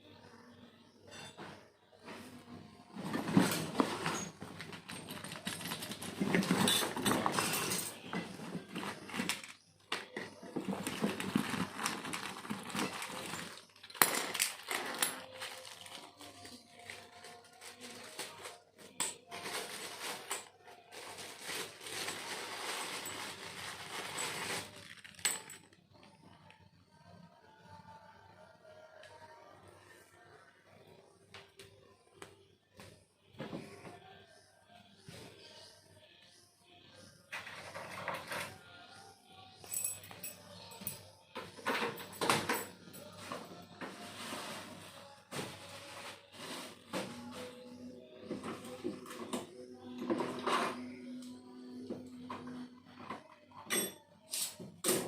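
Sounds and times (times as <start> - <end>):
metal tools clinking and scraping: 3.0 - 16.0, 21.9 - 25.7.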